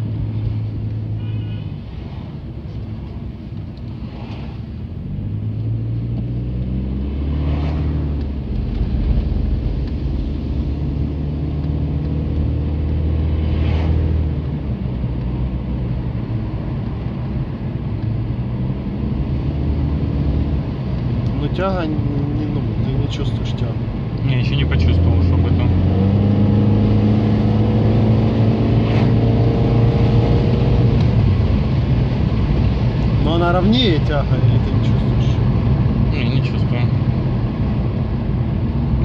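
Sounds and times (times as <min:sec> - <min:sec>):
car engine accelerating through gears: 0:03.6 - 0:33.5.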